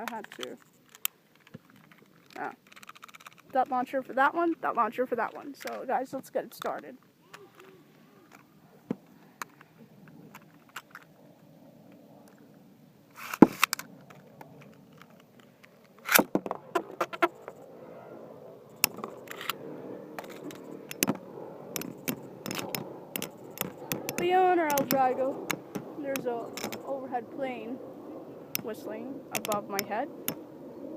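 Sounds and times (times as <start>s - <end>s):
spinning tops scraping and clicking: 18.8s - 19.6s, 20.2s - 21.2s, 21.8s - 27.0s, 28.6s - 30.4s.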